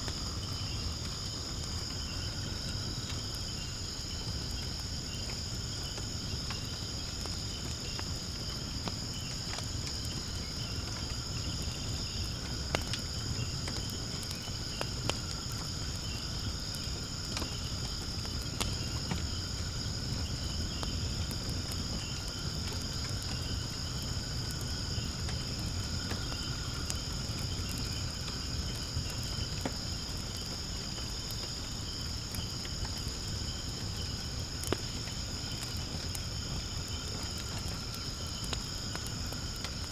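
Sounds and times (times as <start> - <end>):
firewood crackling and popping: 0.0 - 39.9
insects chirring: 0.0 - 39.9.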